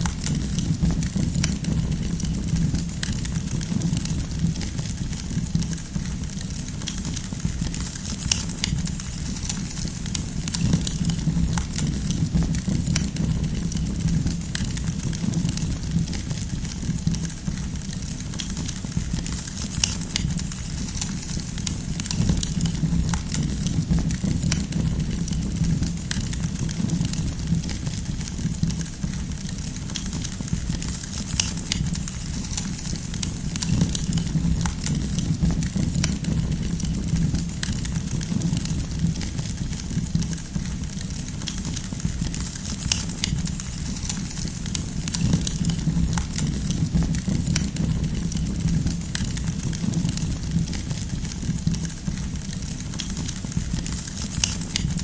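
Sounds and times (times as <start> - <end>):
firewood crackling and popping: 0.0 - 55.0
low rumble of flames: 0.0 - 55.0.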